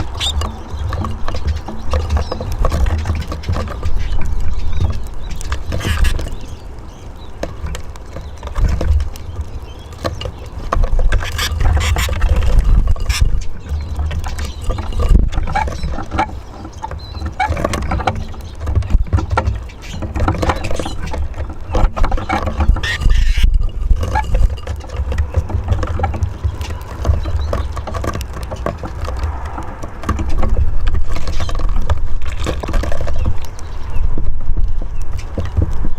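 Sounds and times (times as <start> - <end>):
birds pecking and scratching: 0.0 - 35.9.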